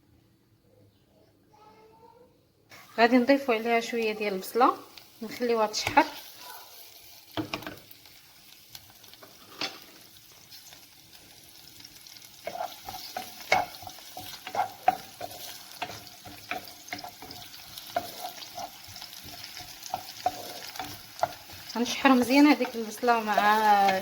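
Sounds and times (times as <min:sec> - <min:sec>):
onion sizzling in oil: 0:02.7 - 0:24.0
utensil scraping against pot: 0:12.4 - 0:24.0.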